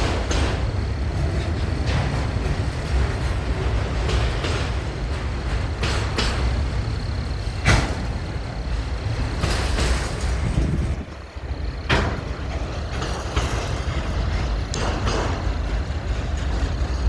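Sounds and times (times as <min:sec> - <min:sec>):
freight train rumbling past: 0:00.0 - 0:17.0
sharp clanks from train wheels: 0:00.0 - 0:17.0.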